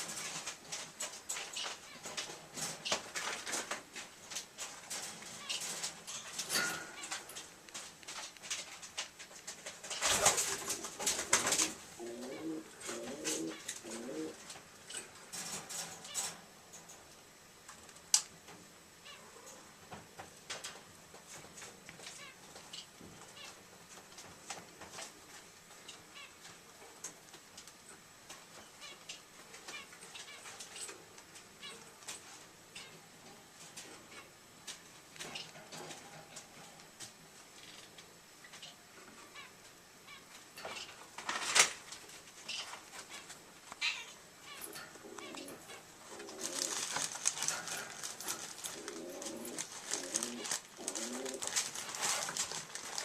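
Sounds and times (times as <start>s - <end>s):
rustling: 0.0s - 16.9s, 40.1s - 53.0s
low cooing: 11.4s - 14.4s, 48.3s - 51.5s.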